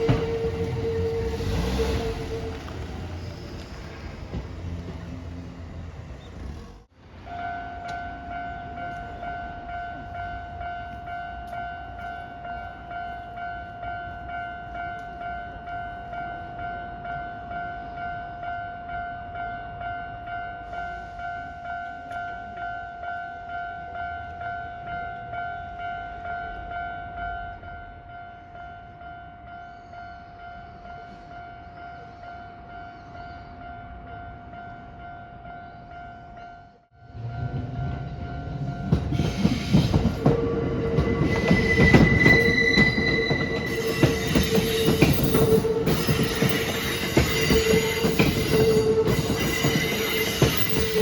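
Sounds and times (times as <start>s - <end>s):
two-tone crossing alarm: 0.0s - 3.2s, 33.8s - 51.0s
train wheels clattering: 37.5s - 51.0s.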